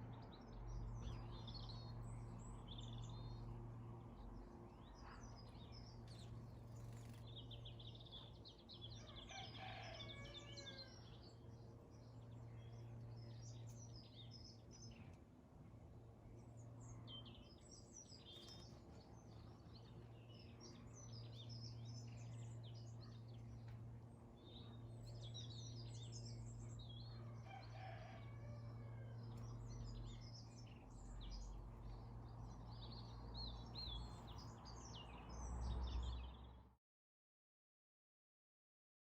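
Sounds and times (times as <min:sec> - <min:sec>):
steady low hum: 0:10.9 - 0:35.8.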